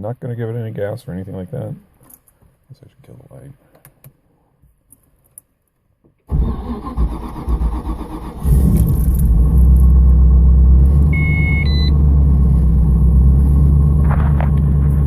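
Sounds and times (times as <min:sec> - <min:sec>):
car engine starting and idling: 0:06.3 - 0:15.0
short electronic beep: 0:11.1 - 0:12.0.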